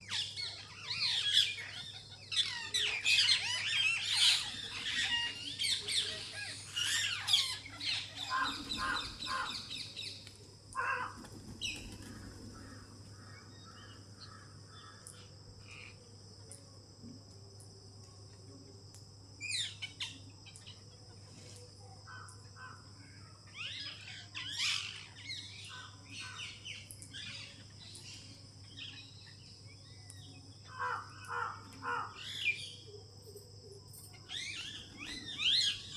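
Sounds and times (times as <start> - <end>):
birds squawking and chirping: 0.0 - 15.1, 23.6 - 29.1, 30.6 - 32.8, 34.3 - 35.9.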